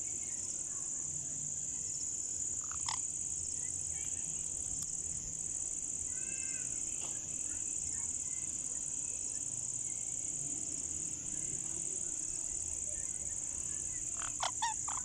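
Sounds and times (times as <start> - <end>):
high-pitched insect chirring: 14.2 - 15.0
sharp bird calls: 14.2 - 15.0.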